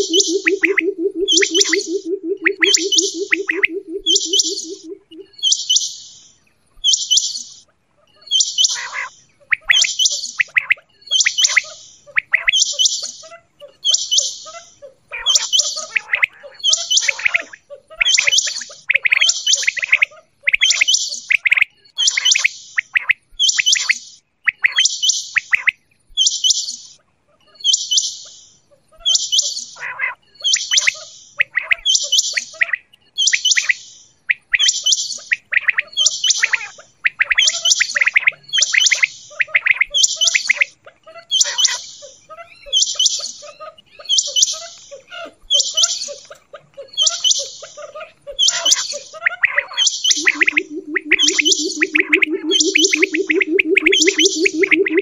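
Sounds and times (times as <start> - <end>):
quail calling: 0.0 - 5.5, 35.3 - 55.0.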